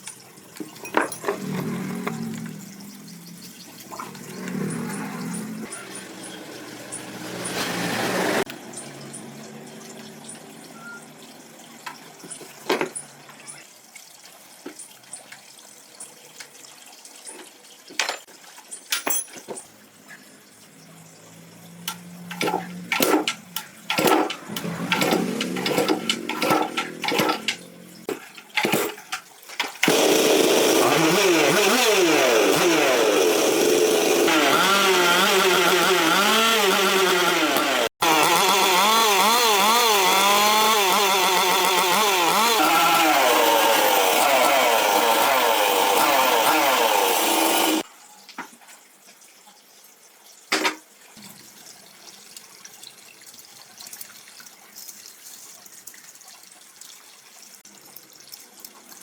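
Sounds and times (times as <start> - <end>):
two-stroke engine revving: 1.2 - 2.9, 4.0 - 9.5, 21.8 - 28.9, 29.8 - 47.8.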